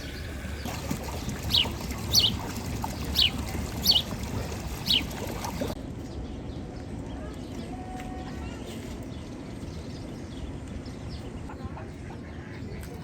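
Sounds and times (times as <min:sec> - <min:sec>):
bird high falling calls: 0:00.0 - 0:04.2.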